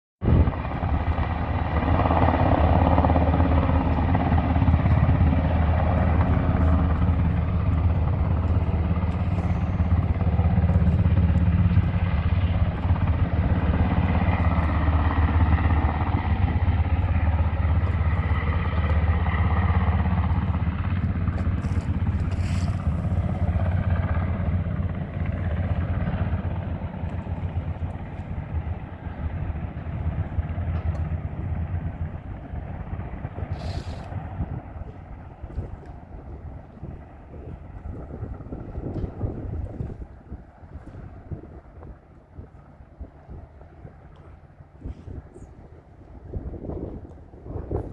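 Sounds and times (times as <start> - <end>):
helicopter running loudly: 0.2 - 47.9.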